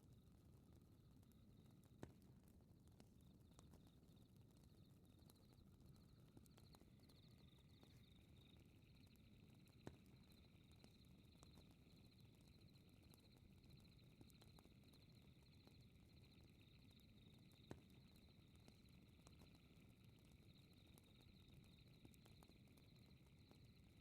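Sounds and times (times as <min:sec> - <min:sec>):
lower insect chirping: 0:06.0 - 0:24.0.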